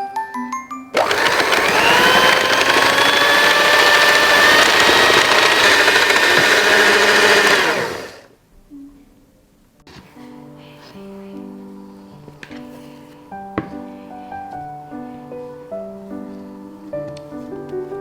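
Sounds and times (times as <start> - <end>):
kitchen appliance motor whining: 1.0 - 8.3
light background music: 9.9 - 18.0.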